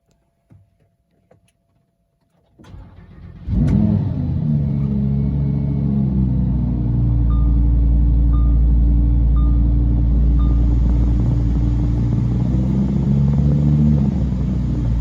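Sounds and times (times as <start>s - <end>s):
car engine starting and idling: 2.3s - 15.0s.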